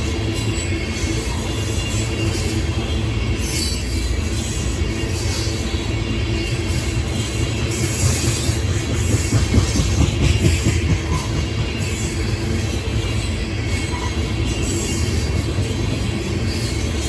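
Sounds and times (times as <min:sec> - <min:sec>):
train wheels rumbling on track: 0:05.9 - 0:17.0.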